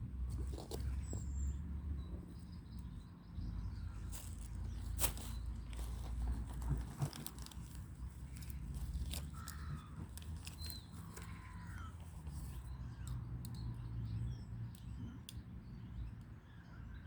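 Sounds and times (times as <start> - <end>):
crow-like bird calls: 8.3 - 12.1.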